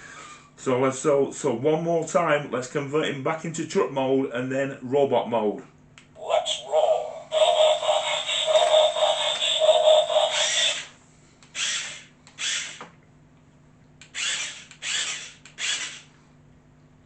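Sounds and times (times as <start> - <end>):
electronic toy sound effect: 6.2 - 10.9
servo motors whirring: 8.7 - 10.9, 11.6 - 12.8, 14.1 - 16.0.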